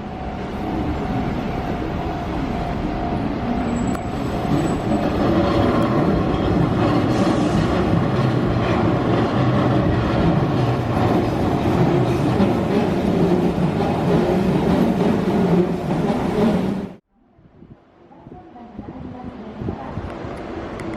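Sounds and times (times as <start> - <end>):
electric train on rails: 0.0 - 17.0, 18.1 - 20.9.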